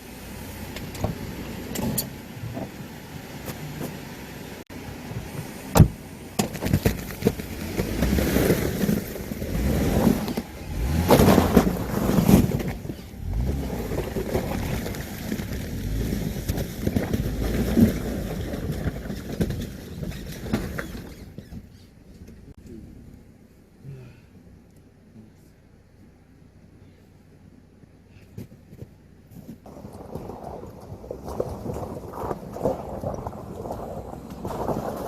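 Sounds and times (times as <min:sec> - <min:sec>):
vehicle engine rumbling: 0:00.0 - 0:35.0
knocks and clunks on rocks: 0:05.2 - 0:09.3, 0:10.2 - 0:22.5, 0:28.2 - 0:35.0.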